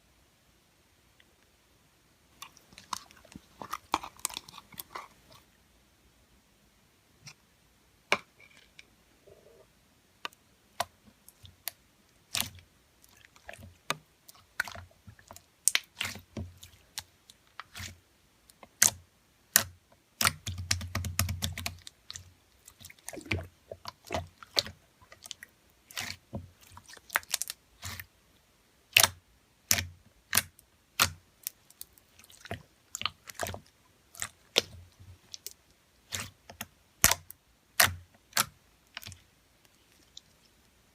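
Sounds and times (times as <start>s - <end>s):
slime squishing and popping: 2.4s - 5.4s, 10.8s - 28.1s, 28.9s - 39.2s.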